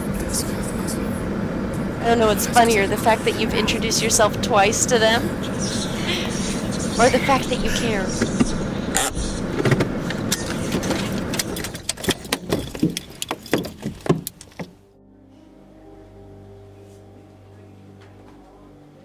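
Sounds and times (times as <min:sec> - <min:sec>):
car noise: 0:00.0 - 0:14.9
sharp clicks and knocks: 0:08.2 - 0:14.8
soft held music notes: 0:15.1 - 0:19.0.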